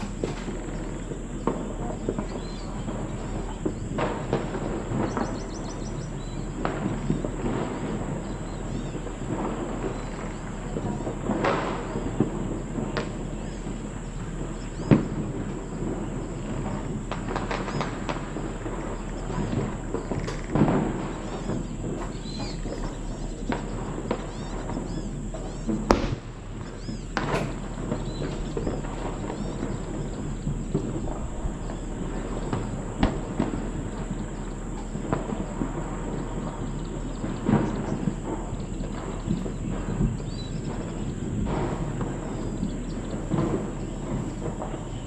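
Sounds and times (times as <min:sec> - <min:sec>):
dense rumbling noise: 0:00.0 - 0:45.0
faint bird chirps: 0:18.9 - 0:25.8, 0:26.6 - 0:32.6
sharp knocks and thuds: 0:25.4 - 0:31.9.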